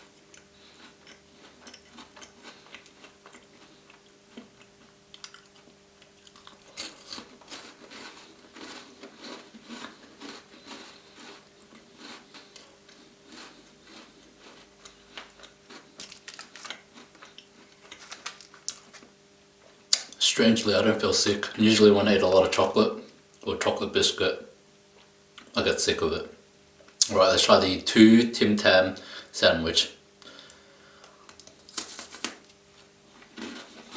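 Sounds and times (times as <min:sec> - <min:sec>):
person chewing crunchy biscuits: 0:00.0 - 0:19.1, 0:30.2 - 0:33.9.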